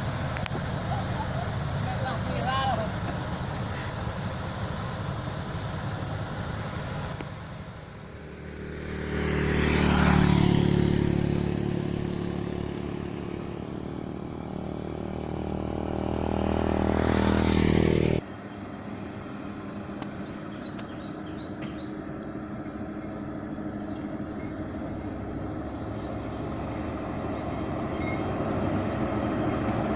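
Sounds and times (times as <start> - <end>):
diesel truck engine drone: 0.0 - 29.9.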